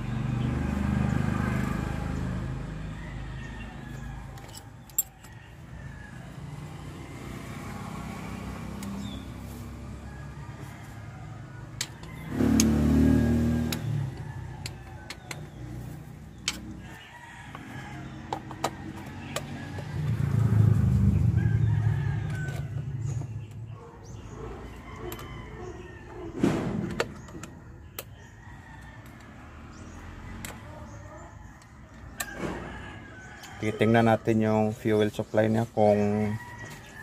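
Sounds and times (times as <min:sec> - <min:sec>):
rooster crowing: 0:00.6 - 0:07.4, 0:09.6 - 0:15.1, 0:16.8 - 0:23.1, 0:24.6 - 0:26.4, 0:32.1 - 0:34.4
hand tools clicking and knocking: 0:11.8 - 0:12.8, 0:13.6 - 0:15.8, 0:16.4 - 0:16.8, 0:17.5 - 0:20.2.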